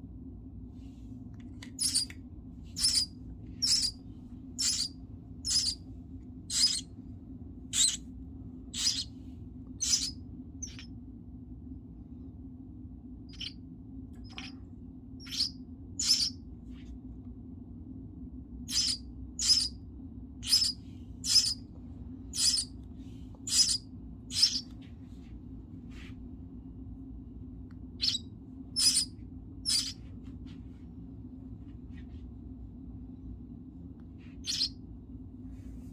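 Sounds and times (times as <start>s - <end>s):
steady low hum: 0.0s - 35.9s
baby bird begging cheeps: 1.8s - 2.1s, 2.8s - 3.9s, 4.6s - 5.8s, 6.5s - 6.8s, 7.8s - 8.0s, 8.8s - 9.1s, 9.8s - 10.9s, 15.2s - 16.3s, 18.7s - 19.7s, 20.4s - 21.6s, 22.4s - 22.7s, 23.5s - 24.6s, 28.0s - 28.2s, 28.8s - 30.0s, 34.4s - 34.7s.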